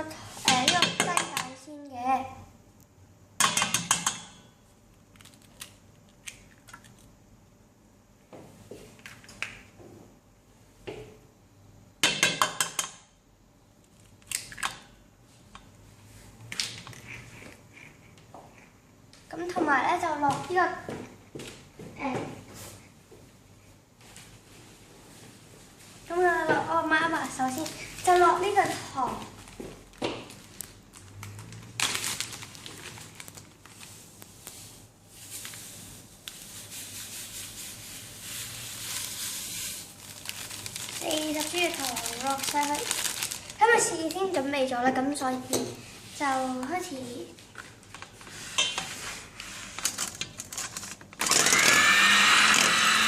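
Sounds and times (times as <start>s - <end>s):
sugar pouring hiss: 33.8s - 42.8s.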